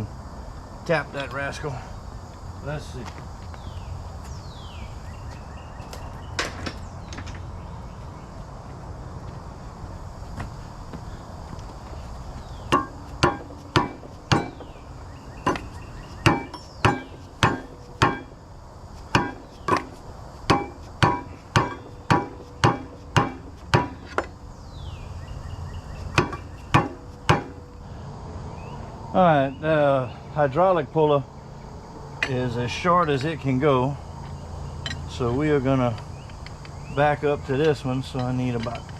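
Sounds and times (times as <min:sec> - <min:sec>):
hammer striking metal: 0:12.7 - 0:14.7, 0:15.4 - 0:18.4, 0:19.1 - 0:24.3, 0:26.2 - 0:27.6.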